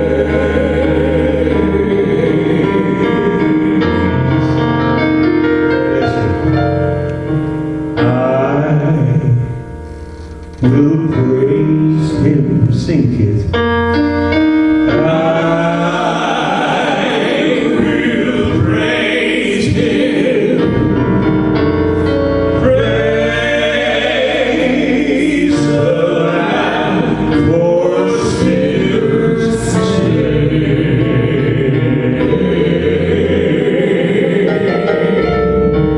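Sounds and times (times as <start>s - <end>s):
choir singing: 0.0s - 9.6s, 14.2s - 35.9s
piano accompaniment: 0.0s - 35.9s.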